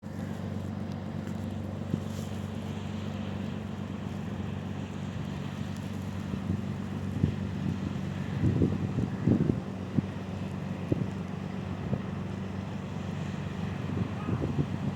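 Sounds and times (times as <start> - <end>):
ship engine humming: 0.1 - 14.9
wind buffeting microphone: 6.2 - 12.6, 13.3 - 14.9.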